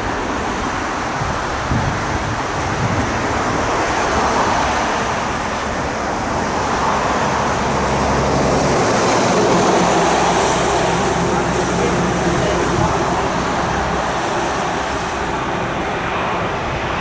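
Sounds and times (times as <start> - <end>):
jet engines rushing: 0.0 - 17.0
low engine hum: 0.0 - 17.0.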